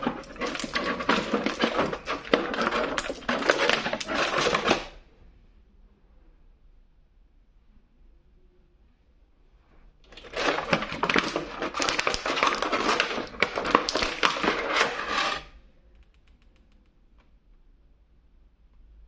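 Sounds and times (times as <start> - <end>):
toy packaging crinkling: 0.0 - 5.0, 10.1 - 15.4.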